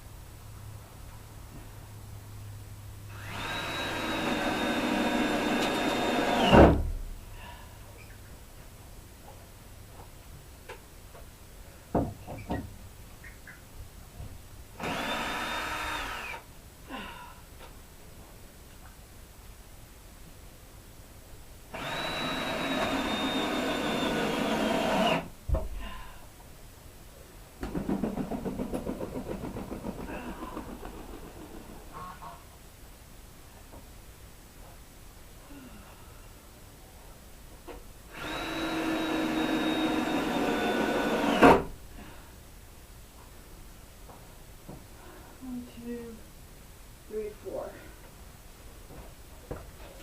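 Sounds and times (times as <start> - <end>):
cordless drill driving screw: 3.2 - 6.6, 14.8 - 16.4, 21.8 - 25.2, 38.1 - 41.6.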